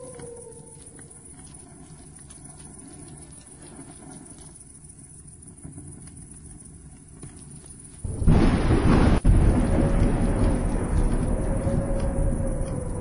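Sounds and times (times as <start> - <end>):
heavy rain: 8.0 - 13.0
low thunder rumble: 8.0 - 13.0
loud thunderclap: 8.1 - 13.0.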